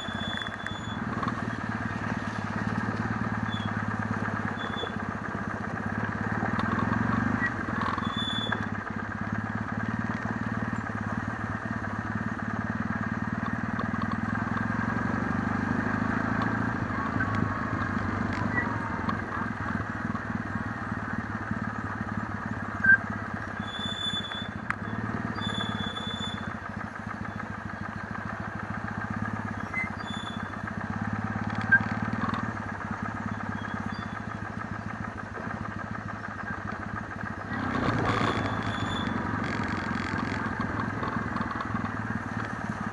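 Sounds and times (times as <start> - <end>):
motorcycle engine running: 0.0 - 42.9
sharp clicks: 31.4 - 32.6, 37.4 - 42.8.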